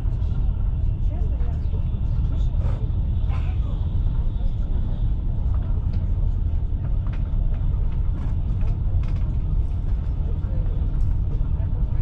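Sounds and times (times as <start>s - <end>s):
train running rumble: 0.0s - 12.0s
faint clicks and rattles: 6.8s - 11.5s.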